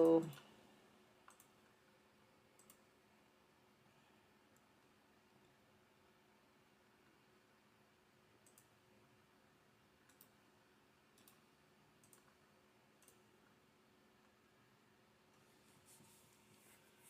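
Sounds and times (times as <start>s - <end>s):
faint room hum: 0.0s - 17.0s
soft computer mouse clicks: 1.2s - 1.8s, 2.5s - 2.9s, 8.4s - 8.8s, 10.0s - 10.5s, 11.1s - 13.6s.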